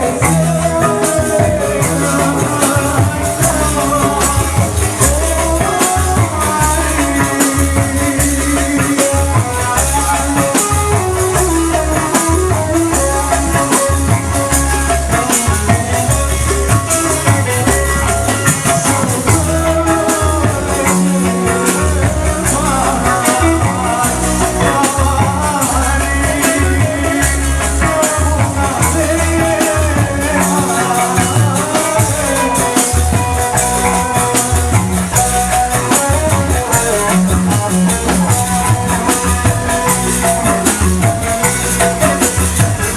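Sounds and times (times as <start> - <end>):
shaken rattle percussion: 0.0 - 42.9
steady drums: 0.0 - 42.9
street band over loudspeakers: 0.0 - 42.9
wavering melody: 0.0 - 42.9.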